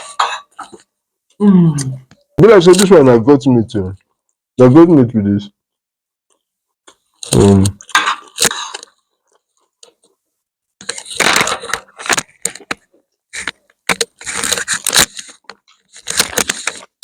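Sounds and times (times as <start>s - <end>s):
cutlery clinking: 0.0s - 0.8s
crunching while eating: 10.8s - 17.0s.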